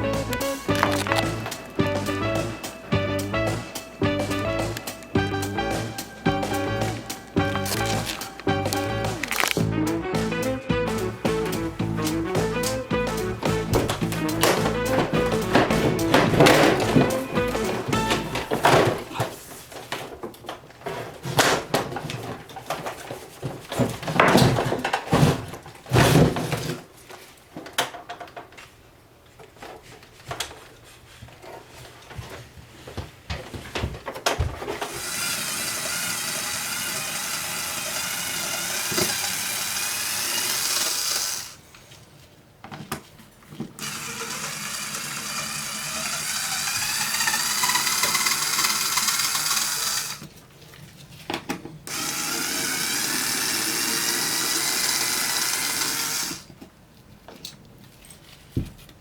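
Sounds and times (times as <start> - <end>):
power tool running: 0.0 - 9.6, 10.9 - 19.1, 34.9 - 41.6, 43.8 - 50.3, 51.9 - 56.5
metal clattering being handled: 11.4 - 26.5.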